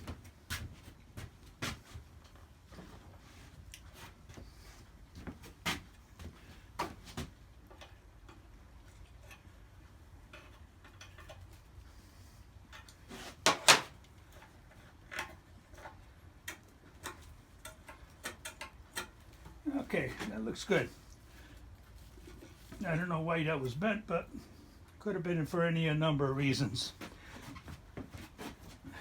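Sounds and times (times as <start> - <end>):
metal tools clicking and knocking: 15.1 - 19.6.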